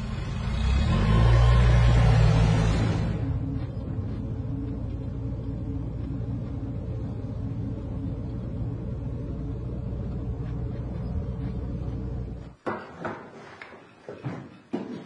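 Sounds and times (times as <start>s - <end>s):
steady low rumble: 1.9s - 12.6s.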